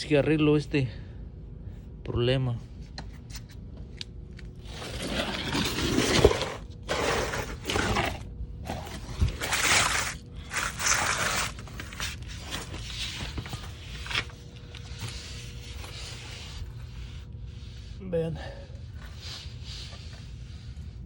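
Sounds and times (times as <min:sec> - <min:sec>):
scraping and rustling: 0:04.6 - 0:17.6.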